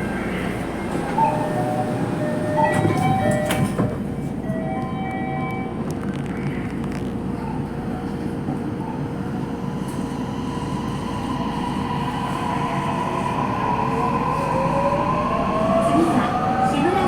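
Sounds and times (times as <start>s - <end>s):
train wheels rumbling on rail: 0.0s - 5.2s.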